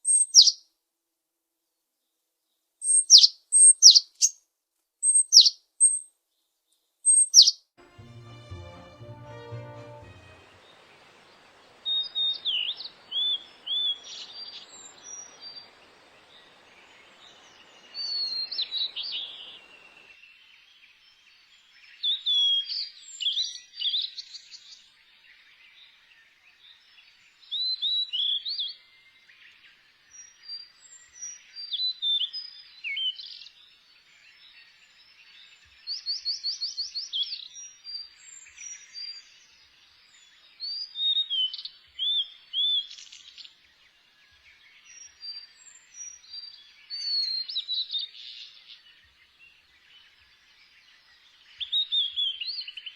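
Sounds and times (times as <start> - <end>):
songbirds singing: 0.0 - 0.6, 2.8 - 4.4, 10.6 - 52.9
faint hiss: 7.8 - 20.2.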